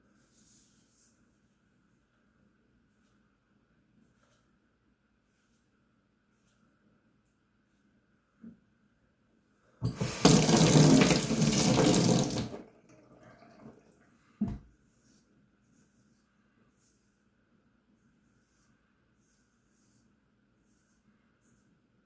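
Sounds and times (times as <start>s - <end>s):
tap running into a sink: 9.8s - 13.8s.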